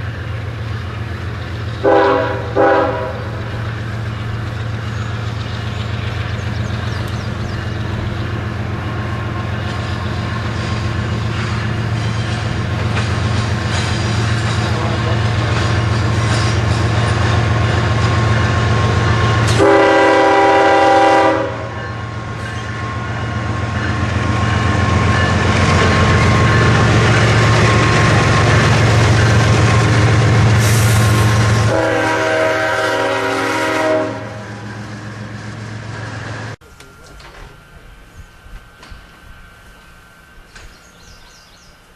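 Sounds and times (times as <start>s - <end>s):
diesel locomotive engine running: 0.0s - 41.9s
locomotive air horn blasts: 1.8s - 3.4s, 19.4s - 21.8s, 30.6s - 34.5s.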